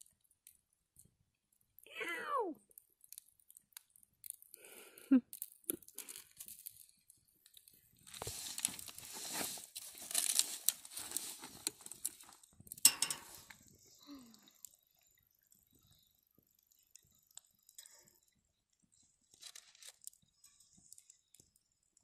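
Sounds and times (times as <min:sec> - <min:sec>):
wrapper crinkling and tearing: 0:07.6 - 0:12.4, 0:19.4 - 0:20.2.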